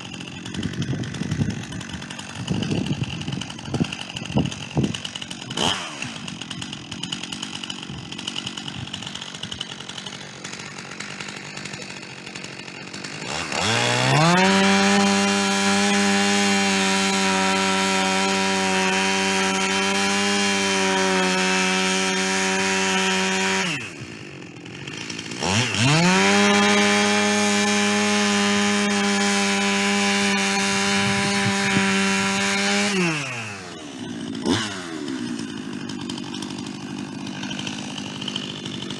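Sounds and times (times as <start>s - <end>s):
chainsaw cutting a log: 0.0s - 38.9s.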